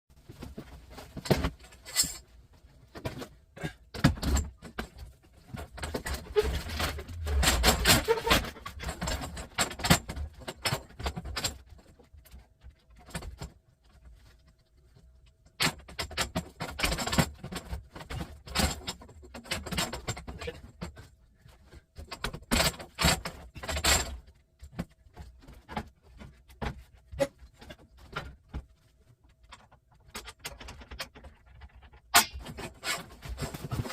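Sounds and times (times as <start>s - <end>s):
metal garage door hardware rattling: 5.7s - 11.6s.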